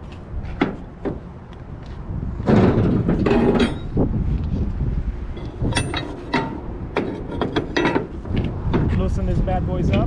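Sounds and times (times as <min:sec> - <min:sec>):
metal strap hardware clinking: 0:05.4 - 0:08.2.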